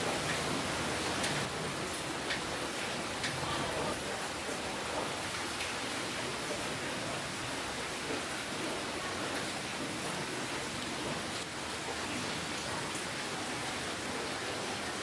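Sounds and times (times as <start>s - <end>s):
steady rainfall: 0.0s - 15.0s
raindrop ticks: 1.1s - 5.8s.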